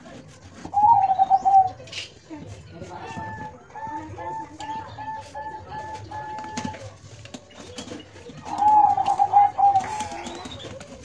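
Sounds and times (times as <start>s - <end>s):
dove cooing: 0.7s - 1.8s, 2.9s - 6.9s, 8.4s - 11.0s.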